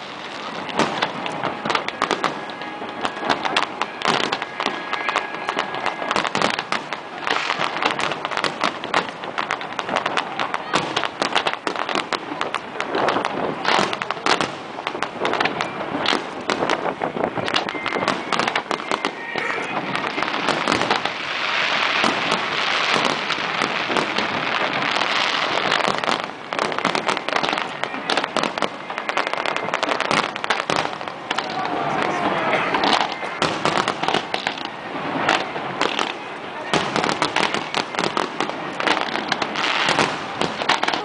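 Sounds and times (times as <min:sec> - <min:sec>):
fireworks bangs and crackle: 0:00.0 - 0:41.0.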